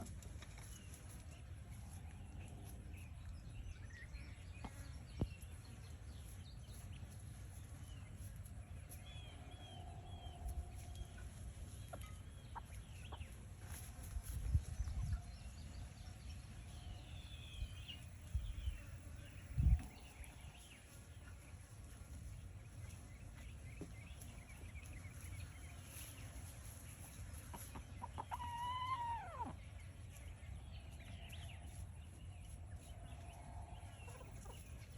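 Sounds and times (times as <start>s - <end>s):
chickens clucking: 4.4s - 16.6s, 19.8s - 30.4s, 32.5s - 34.9s
hen or rooster call: 28.2s - 29.6s.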